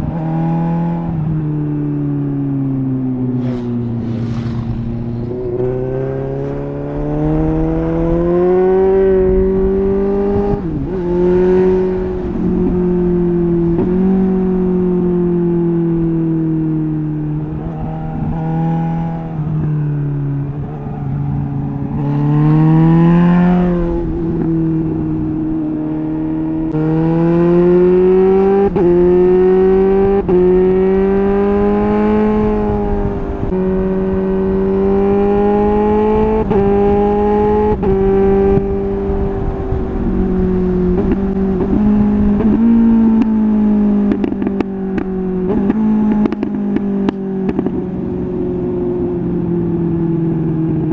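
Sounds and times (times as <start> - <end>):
motorcycle engine revving through gears: 0.0 - 50.9
exhaust pops and clicks: 40.9 - 43.4, 44.0 - 47.9.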